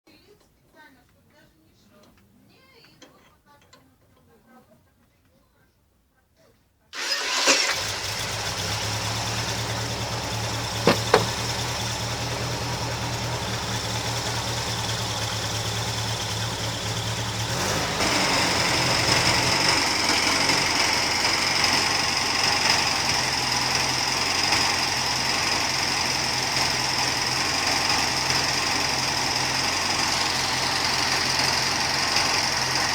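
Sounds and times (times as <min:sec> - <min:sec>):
car engine starting and idling: 0:07.0 - 0:32.9.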